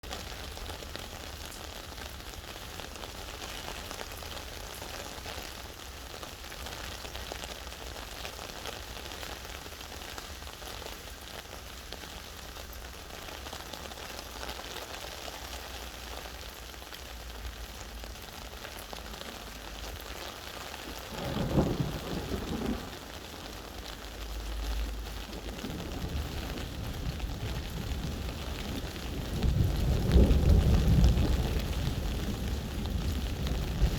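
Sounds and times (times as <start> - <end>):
steady rain falling: 0.0 - 33.9
thunder rumbling: 19.8 - 33.9.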